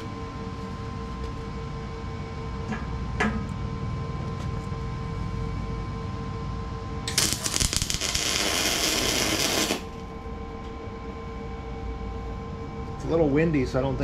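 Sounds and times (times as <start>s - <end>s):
steady low hum: 0.0s - 14.0s
welding arc crackling and buzzing: 7.1s - 10.1s.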